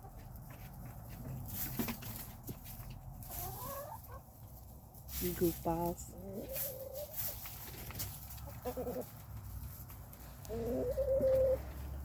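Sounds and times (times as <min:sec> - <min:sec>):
chickens calling softly: 0:02.0 - 0:04.8, 0:06.1 - 0:12.0.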